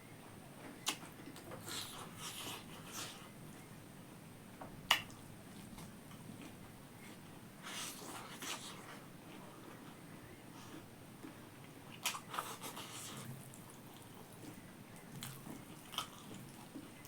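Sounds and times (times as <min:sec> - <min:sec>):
person chewing food: 0:04.9 - 0:17.0.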